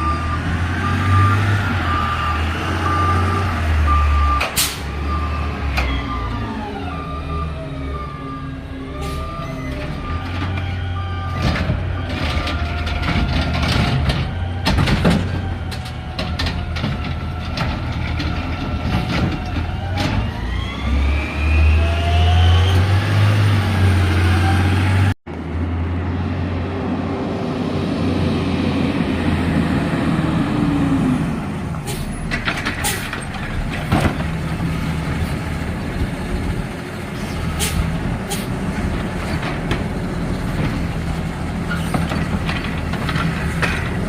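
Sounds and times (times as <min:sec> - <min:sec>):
metal clanks and bangs: 0:31.9 - 0:34.7, 0:41.7 - 0:44.0.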